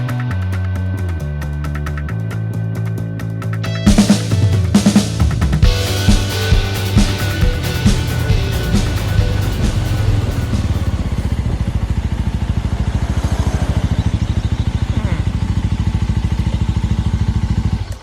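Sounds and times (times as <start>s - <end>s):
background music: 0.0s - 11.4s
motorcycle engine running: 0.0s - 18.0s.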